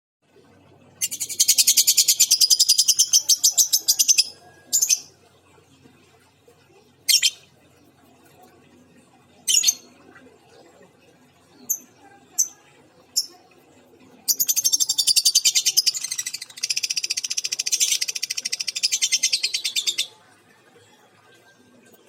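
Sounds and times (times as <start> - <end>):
lovebird chirping: 1.0 - 5.1, 7.1 - 7.5.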